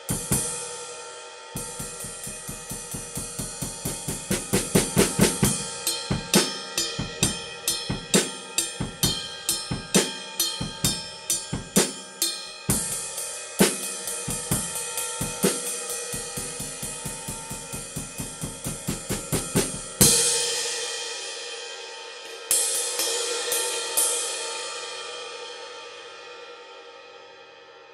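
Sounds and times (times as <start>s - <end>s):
ride cymbal: 0.0s - 25.4s
snare and bass drum groove: 1.6s - 20.3s
cymbal crash: 1.6s - 26.2s.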